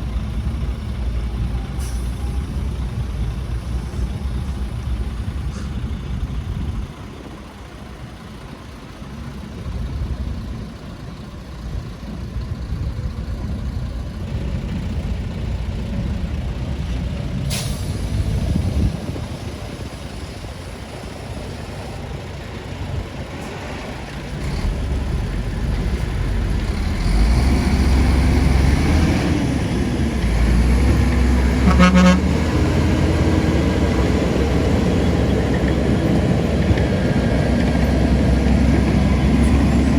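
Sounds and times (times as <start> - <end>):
heavy diesel engines rumbling: 0.0 - 39.9
short horn toot: 31.6 - 32.4.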